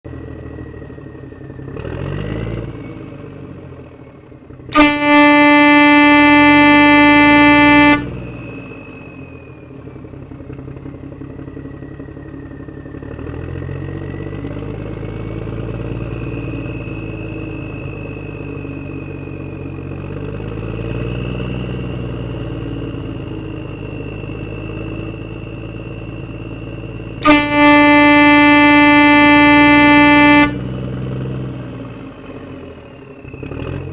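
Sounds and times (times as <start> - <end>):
engine running: 0.0 - 33.9
thin whine: 4.8 - 8.2, 26.2 - 30.6
horn blaring: 4.8 - 8.4, 27.2 - 30.8.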